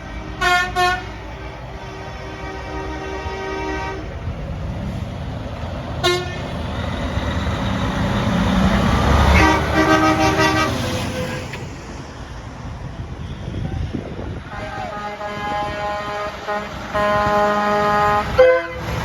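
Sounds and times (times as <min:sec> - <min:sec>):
truck air horn blasts: 0:00.0 - 0:04.2, 0:06.0 - 0:06.6, 0:09.2 - 0:11.6, 0:14.4 - 0:19.0
truck engine rumble: 0:00.0 - 0:19.0.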